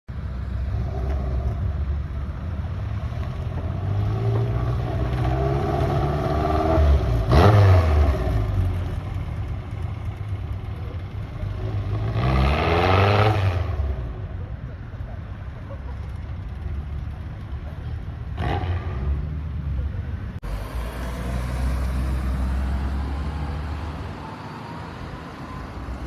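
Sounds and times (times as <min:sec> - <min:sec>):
car engine revving: 0:03.0 - 0:09.5, 0:20.4 - 0:25.6.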